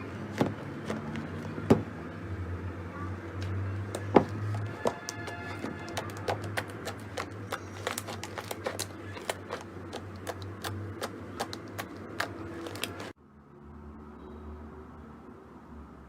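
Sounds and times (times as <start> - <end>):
slime clicking and popping: 4.9 - 13.1.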